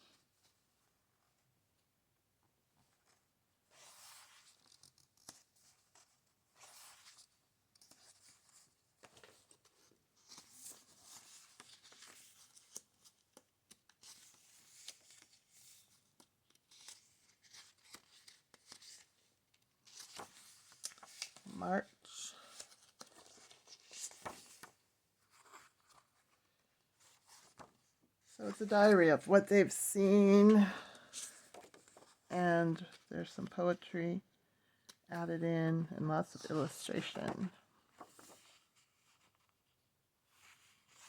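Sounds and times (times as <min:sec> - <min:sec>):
book pages rustling: 0:03.8 - 0:21.6, 0:22.3 - 0:29.3, 0:30.1 - 0:33.1, 0:36.4 - 0:39.6, 0:40.3 - 0:41.0.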